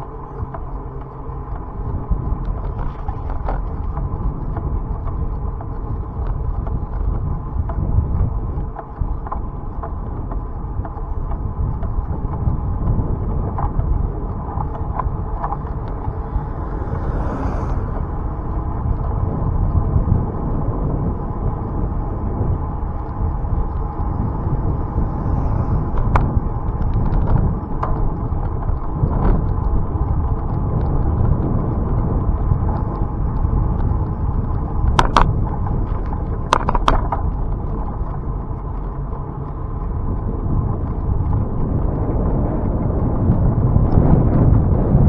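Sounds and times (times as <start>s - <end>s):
bicycle tyre road noise: 0.0s - 45.0s
wind buffeting microphone: 0.0s - 45.0s
light rattles and clicks: 18.0s - 44.5s.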